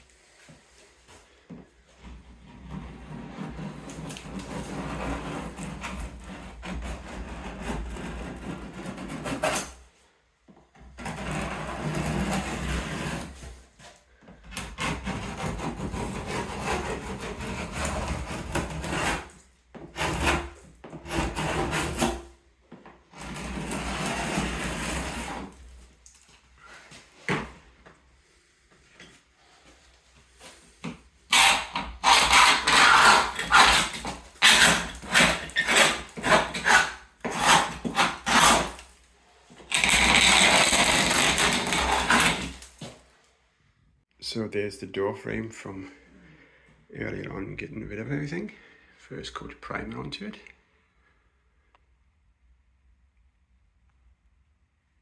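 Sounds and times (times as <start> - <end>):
scraper rasping on painted wood: 2.4 - 9.8, 11.0 - 13.5, 14.5 - 22.3, 23.2 - 25.6, 31.3 - 38.9, 39.6 - 42.9.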